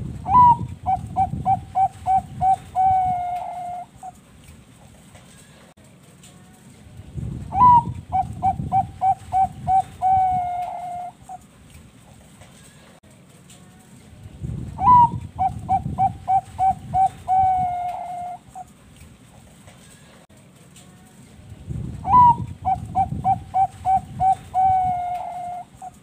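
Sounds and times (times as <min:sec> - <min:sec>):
dove cooing song: 0:00.2 - 0:04.2, 0:07.5 - 0:11.4, 0:14.8 - 0:18.7, 0:22.0 - 0:26.0.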